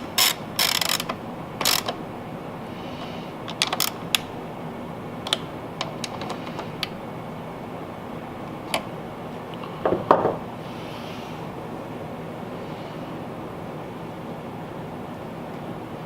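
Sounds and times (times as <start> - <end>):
tools and parts clicking: 0.0 - 2.0, 3.5 - 4.3
steady background noise: 0.0 - 16.0.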